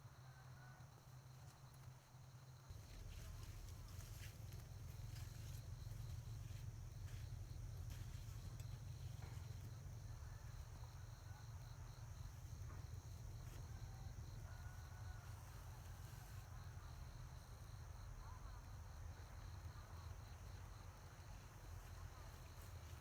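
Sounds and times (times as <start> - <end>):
insects chirping: 0.0 - 23.0
low steady rumble: 2.6 - 13.4.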